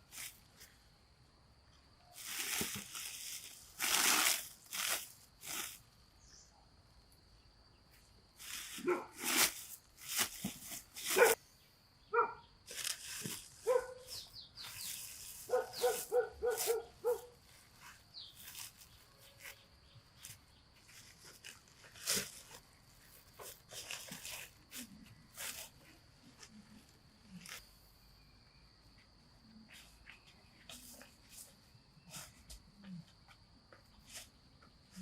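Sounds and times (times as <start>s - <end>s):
rustles: 0.0s - 0.8s, 2.1s - 6.3s, 7.9s - 11.4s, 12.6s - 27.8s.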